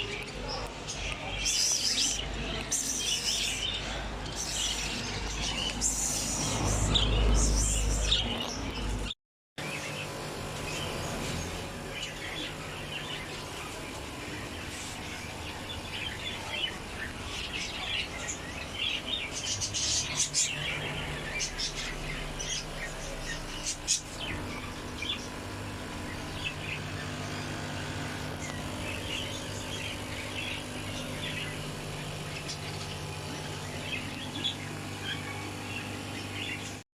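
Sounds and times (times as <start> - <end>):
cage birds chirping: 0.0 - 36.8.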